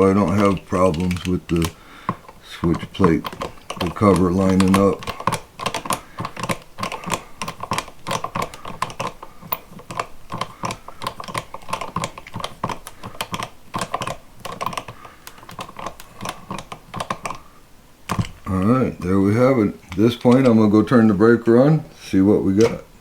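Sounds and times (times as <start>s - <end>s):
screwdriver clicking driving screws: 0.0s - 17.4s.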